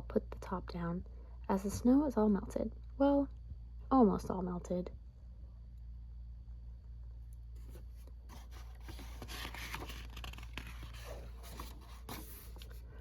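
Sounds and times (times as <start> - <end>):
book pages rustling: 7.6 - 12.9.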